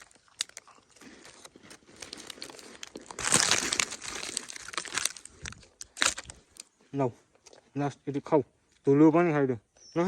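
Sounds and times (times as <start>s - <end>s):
plastic packet crinkling: 0.0s - 6.6s.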